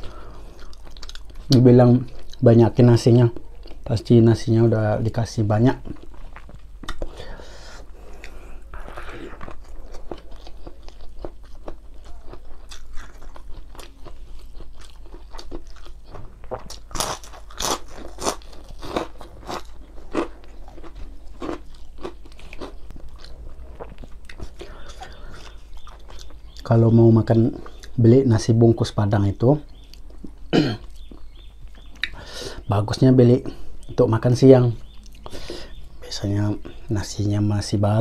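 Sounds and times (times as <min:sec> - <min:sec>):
chewing and crunching food: 0:00.0 - 0:04.5, 0:05.6 - 0:28.0, 0:29.6 - 0:32.3, 0:34.6 - 0:36.9.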